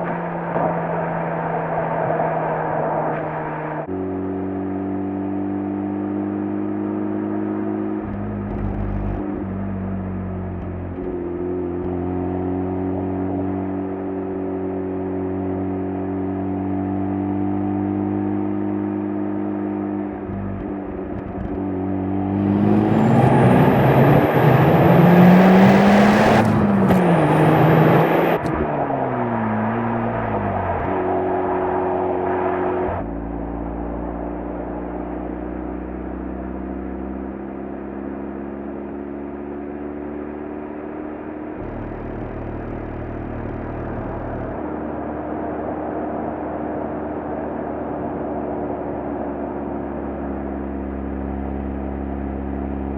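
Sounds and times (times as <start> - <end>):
rotary engine exhaust: 20.2 - 31.8, 41.0 - 48.0.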